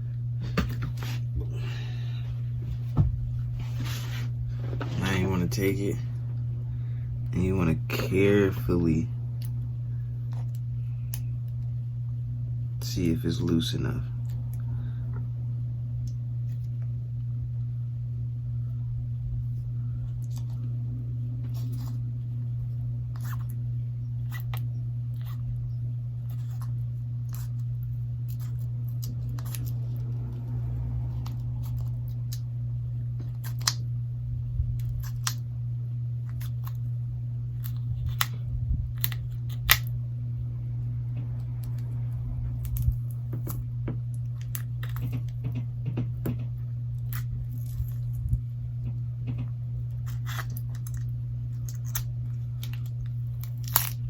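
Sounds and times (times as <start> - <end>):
steady low hum: 0.0 - 54.0
small clicks and scrapes: 26.3 - 27.7.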